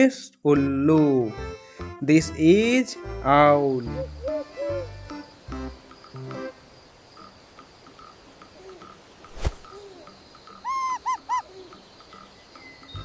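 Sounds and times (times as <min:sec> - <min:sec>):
owl hooting: 0:03.8 - 0:05.3, 0:08.0 - 0:12.9
faint regular chirping: 0:03.8 - 0:13.0.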